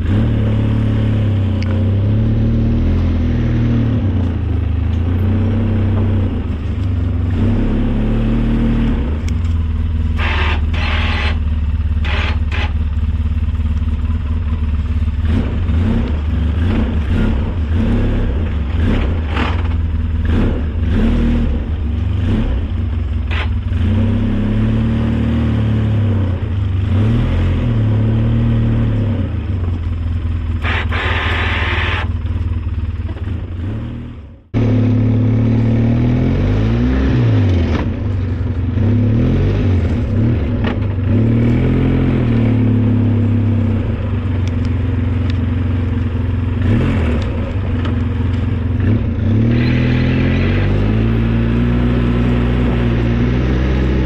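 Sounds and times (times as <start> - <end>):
vehicle engine revving: 0.0 - 54.0
rattles and scrapes: 12.0 - 13.1, 18.7 - 20.1.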